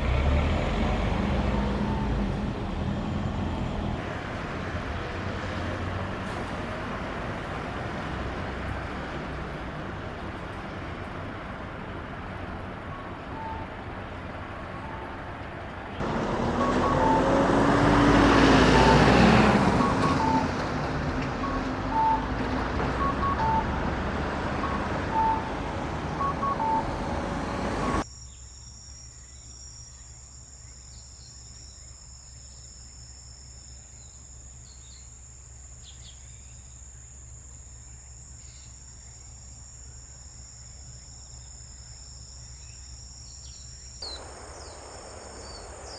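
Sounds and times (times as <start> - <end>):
motor vehicle passing: 0.0 - 28.0
insects chirring: 0.1 - 45.9
short electronic beeps: 16.5 - 17.4, 19.8 - 20.6, 24.6 - 28.0.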